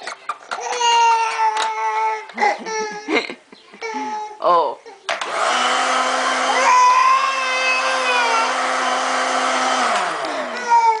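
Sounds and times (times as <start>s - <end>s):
blender motor running: 5.2s - 11.0s.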